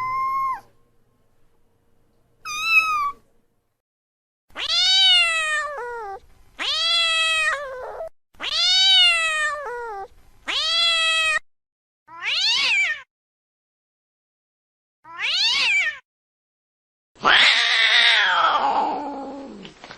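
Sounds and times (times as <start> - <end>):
cat meowing: 0.0 - 0.7, 2.4 - 3.2, 4.5 - 11.4, 12.1 - 13.1, 15.1 - 16.0, 17.2 - 19.6.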